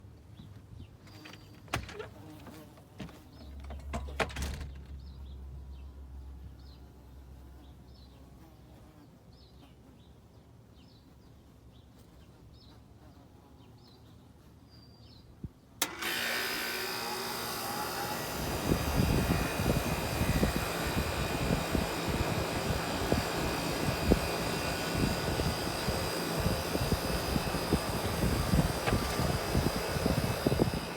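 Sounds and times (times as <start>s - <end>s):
air conditioner compressor and fan: 15.8s - 30.9s
low hum: 17.3s - 30.9s.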